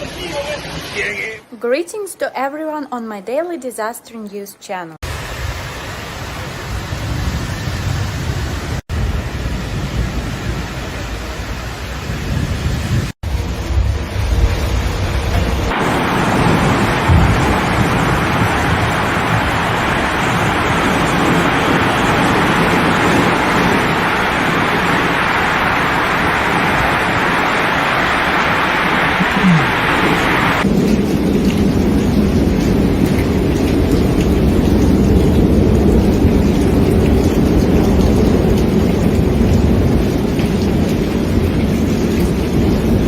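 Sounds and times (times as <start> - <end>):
floodwater rushing: 0.0 - 1.5, 13.2 - 43.0
wind buffeting microphone: 6.6 - 31.5.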